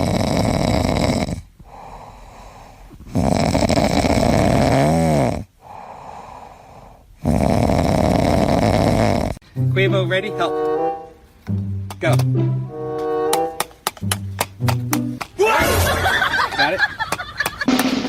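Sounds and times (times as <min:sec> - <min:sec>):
pet snoring loudly: 0:00.0 - 0:09.4
quiet breaths: 0:00.0 - 0:09.4.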